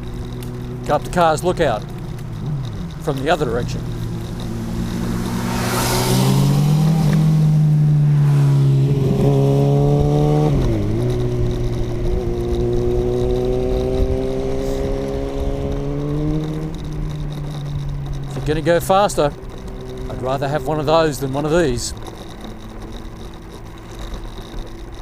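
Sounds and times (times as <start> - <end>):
electric scooter motor whining: 0.0 - 25.0.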